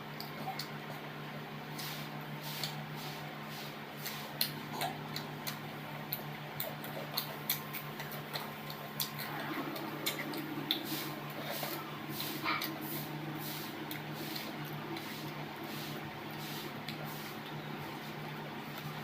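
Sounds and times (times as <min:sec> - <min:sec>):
steady low hum: 0:00.0 - 0:19.0
chewing and utensil clicks: 0:00.2 - 0:01.0, 0:04.0 - 0:11.8, 0:12.5 - 0:12.8, 0:13.8 - 0:15.4, 0:16.8 - 0:17.6.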